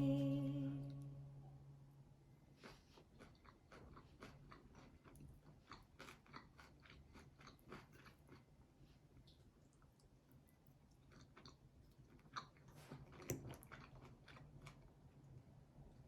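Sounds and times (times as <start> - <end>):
person chewing and crunching: 2.5 - 15.3.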